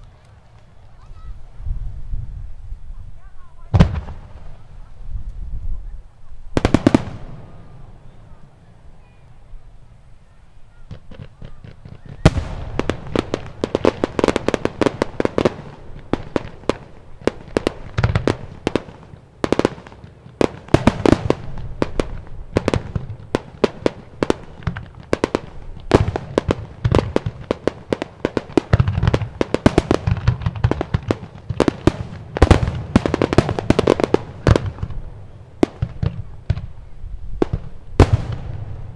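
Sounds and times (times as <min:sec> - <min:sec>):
firework crackles: 0:00.0 - 0:38.9
firework shells bursting: 0:10.9 - 0:36.8.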